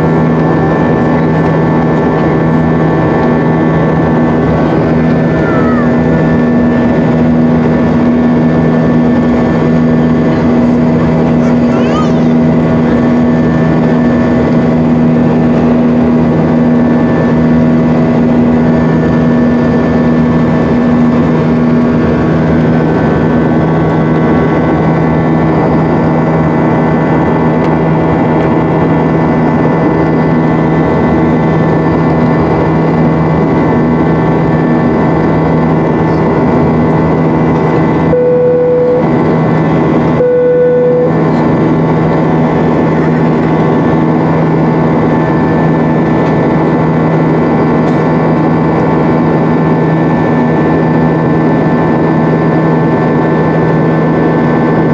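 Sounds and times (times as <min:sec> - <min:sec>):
jet engine drone in cabin: 0:00.0 - 0:54.9
short steady tone: 0:38.1 - 0:39.1, 0:40.2 - 0:41.2.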